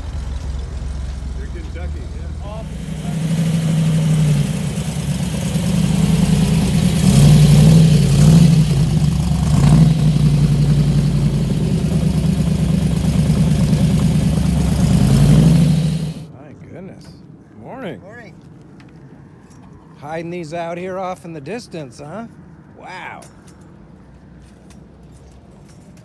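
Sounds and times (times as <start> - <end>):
car engine idling and revving: 0.0 - 16.3.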